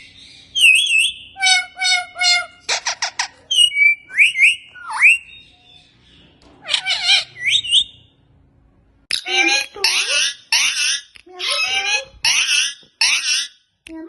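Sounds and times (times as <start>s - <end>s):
parakeet chirping and whistling: 0.0s - 6.0s, 6.7s - 8.1s, 9.1s - 13.6s.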